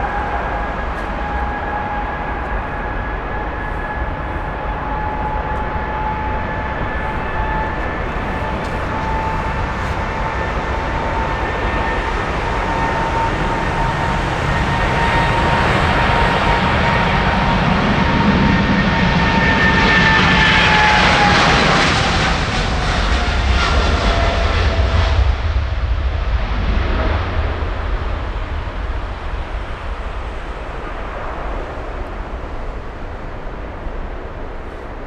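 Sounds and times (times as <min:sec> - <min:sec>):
jet airliner passing: 0:00.0 - 0:35.0.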